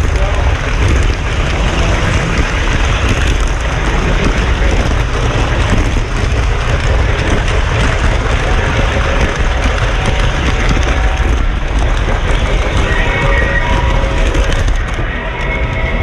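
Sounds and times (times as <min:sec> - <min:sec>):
model train rumbling on track: 0:00.0 - 0:16.0.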